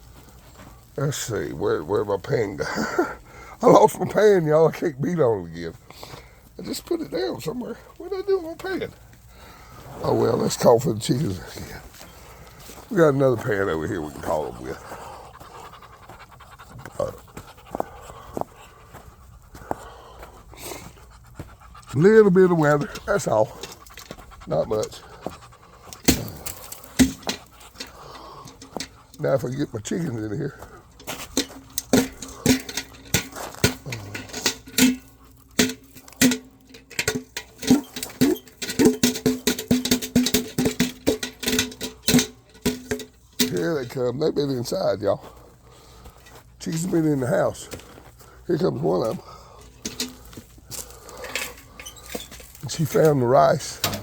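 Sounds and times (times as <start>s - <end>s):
dog panting: 5.4s - 43.5s, 45.2s - 52.0s
metal pan being beaten: 31.8s - 43.6s.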